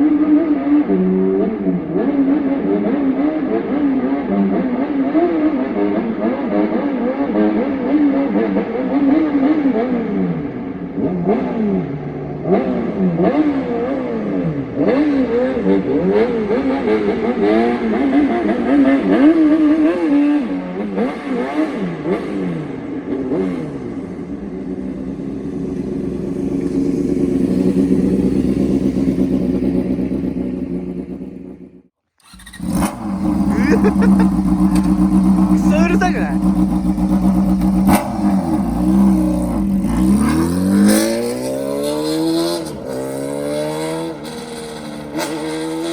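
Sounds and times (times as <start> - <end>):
motorcycle engine revving: 12.4 - 35.6, 36.4 - 45.9.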